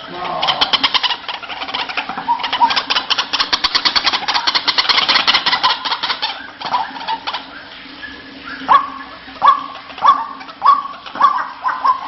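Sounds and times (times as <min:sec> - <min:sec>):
waterhen rasping calls: 0:00.0 - 0:12.0.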